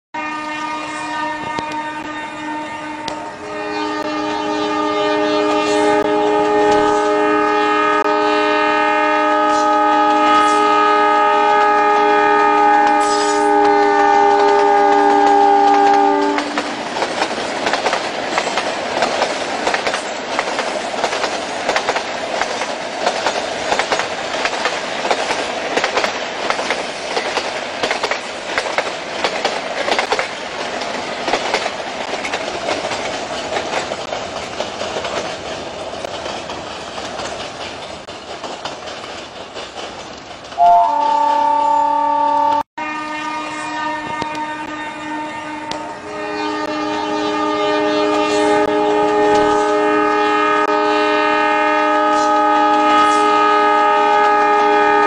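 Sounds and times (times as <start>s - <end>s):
diesel locomotive horn blast: 0.2s - 16.8s, 40.6s - 55.0s
train wheels clacking over rail joints: 11.5s - 41.1s.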